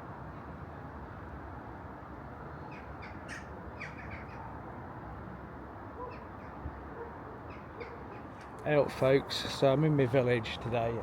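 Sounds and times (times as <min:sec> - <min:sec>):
birds calling: 0:02.7 - 0:04.4.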